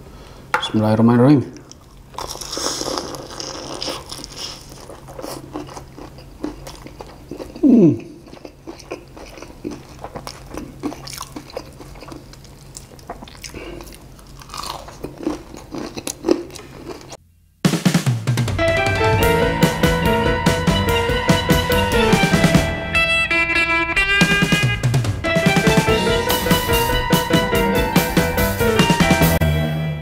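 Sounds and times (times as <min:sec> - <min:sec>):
crunchy chicken chewing: 0:01.7 - 0:17.2
loud brief falling-pitch sound: 0:18.6 - 0:30.0.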